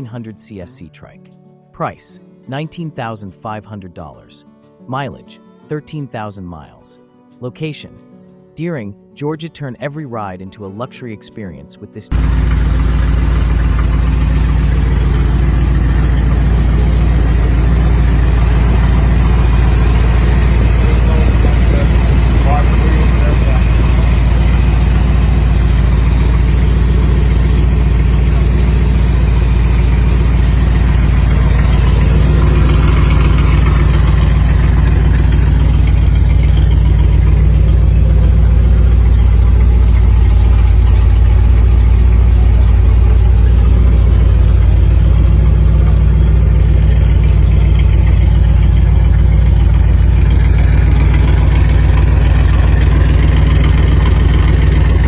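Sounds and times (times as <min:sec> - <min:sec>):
motorcycle engine idling: 0:12.1 - 0:55.0.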